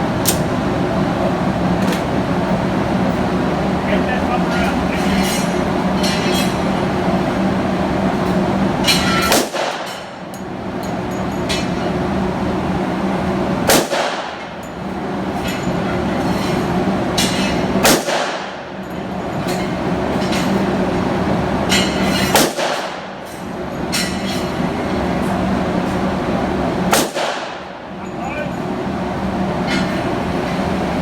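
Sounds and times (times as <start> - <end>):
handgun shots with echo: 9.3 - 10.0, 13.7 - 14.4, 17.8 - 18.6, 22.3 - 23.0, 26.9 - 27.7.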